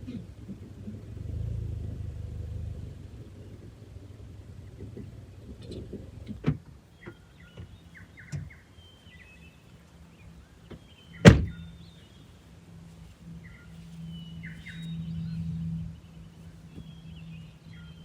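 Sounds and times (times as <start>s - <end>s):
low steady hum: 0.0s - 18.0s
birds chirping: 3.0s - 18.0s
van door knocks and clicks: 10.7s - 11.6s
van door thump: 10.7s - 11.6s.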